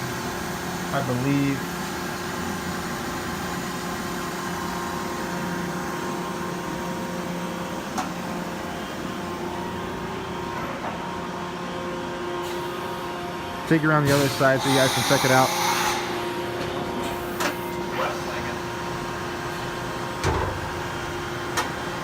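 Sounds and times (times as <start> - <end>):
machining center humming: 0.0 - 22.0.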